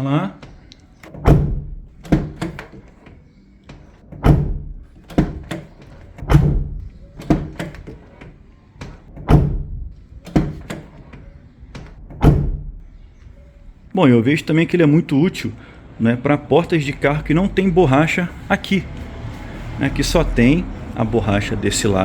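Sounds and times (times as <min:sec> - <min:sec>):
car door shutting with thunk: 0:00.4 - 0:12.9.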